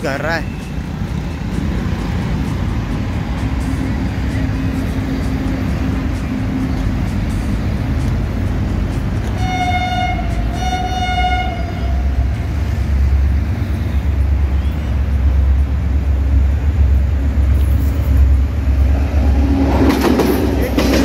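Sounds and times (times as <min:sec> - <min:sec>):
deep rumble of train: 0:00.0 - 0:21.0
train horn blasts: 0:09.3 - 0:12.7.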